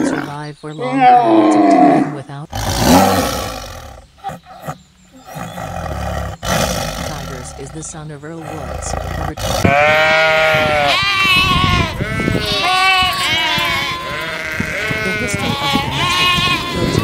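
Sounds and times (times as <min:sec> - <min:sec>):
sheep bleating: 0:07.0 - 0:17.0.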